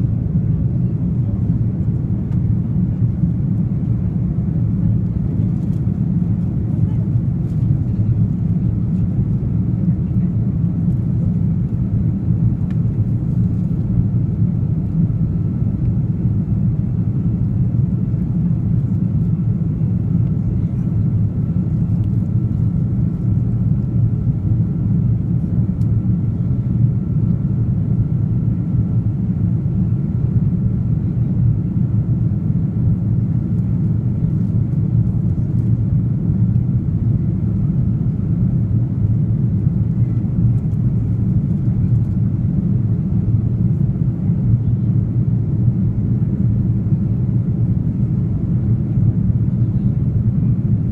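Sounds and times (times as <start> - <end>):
airplane cabin engine rumble: 0.0 - 50.9.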